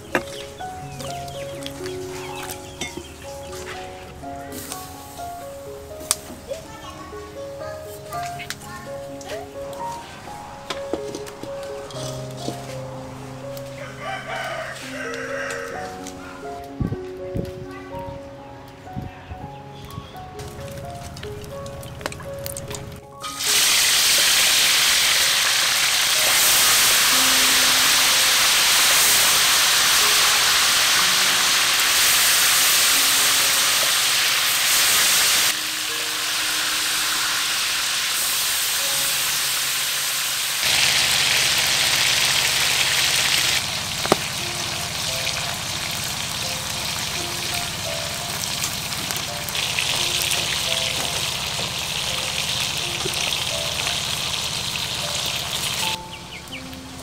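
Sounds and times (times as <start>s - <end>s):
fish sizzling on grill: 0.0s - 16.5s, 20.2s - 57.0s
soft background music: 0.0s - 40.9s, 43.0s - 57.0s
fish sizzling in hot oil: 13.8s - 15.7s, 21.2s - 56.0s.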